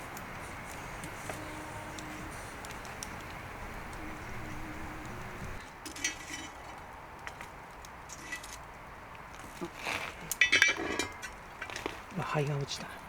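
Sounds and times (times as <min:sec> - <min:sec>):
faint steady hiss: 0:00.0 - 0:13.0
metal cooking utensils clattering: 0:05.8 - 0:06.6, 0:10.4 - 0:11.4.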